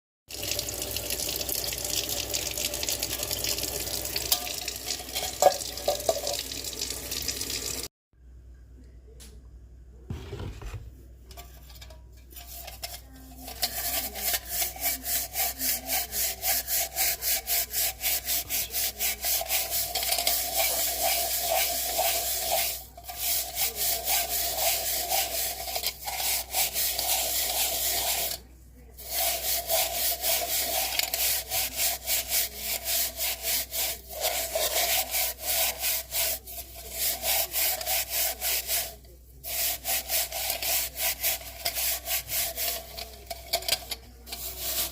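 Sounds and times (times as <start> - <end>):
rubbing strokes on wood: 13.5 - 43.2.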